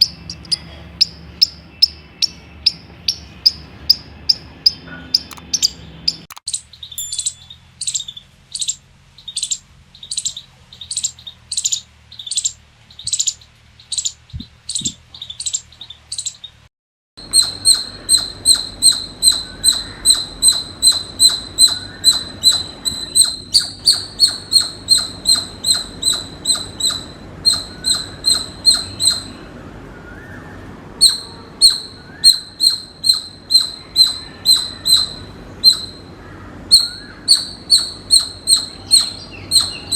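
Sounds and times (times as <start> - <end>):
squirrel chirping: 0.0 - 16.6, 17.2 - 29.5, 31.0 - 39.9.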